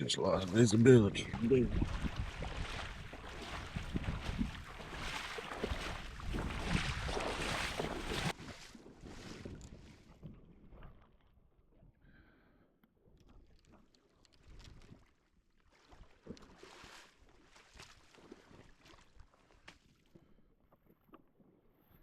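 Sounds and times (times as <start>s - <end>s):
gusting wind on microphone: 1.0s - 8.3s.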